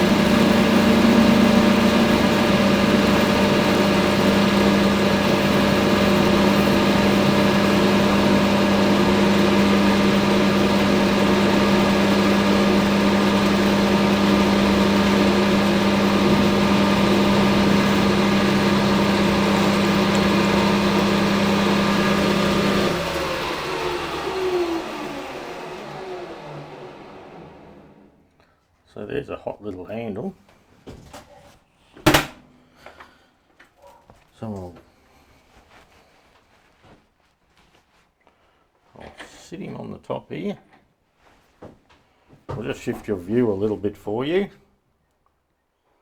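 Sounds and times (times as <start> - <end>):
metal lathe running: 0.0 - 28.1.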